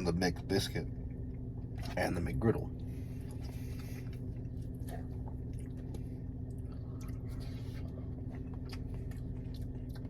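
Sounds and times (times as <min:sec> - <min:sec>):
steady low hum: 0:00.0 - 0:10.0
person chewing soft food: 0:02.8 - 0:10.0.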